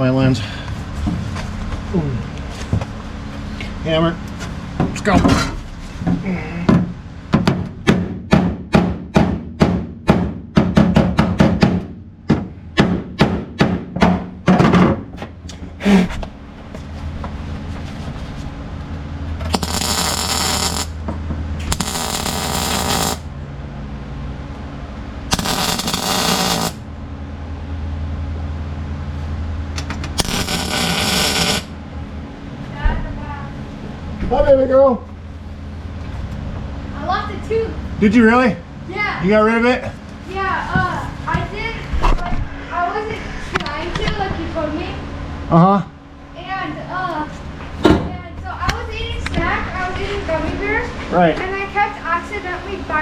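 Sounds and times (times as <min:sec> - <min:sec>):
steady low hum: 0:00.0 - 0:53.0
welder crackling: 0:19.4 - 0:21.0, 0:21.6 - 0:23.3, 0:25.3 - 0:26.8, 0:30.1 - 0:31.8.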